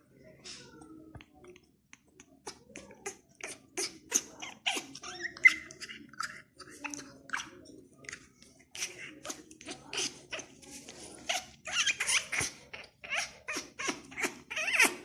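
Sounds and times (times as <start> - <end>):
parrot squeaks and chirps: 3.4 - 7.5, 11.2 - 15.0.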